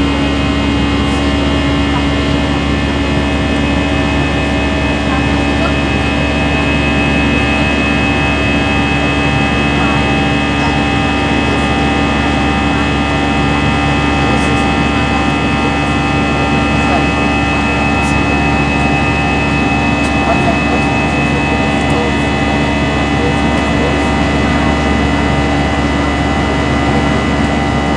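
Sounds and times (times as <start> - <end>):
jet engine and airflow noise: 0.0 - 27.9.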